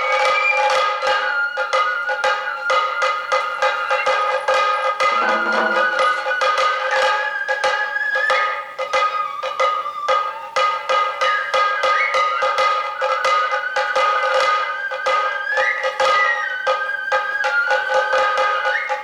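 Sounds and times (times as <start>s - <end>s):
high flute melody: 0.0s - 19.0s
sharp drum strikes: 4.9s - 6.7s.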